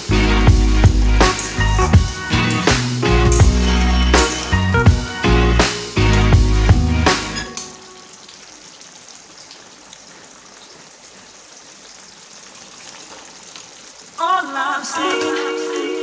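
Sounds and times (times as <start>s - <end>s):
music with wavering melody: 0.0s - 8.1s.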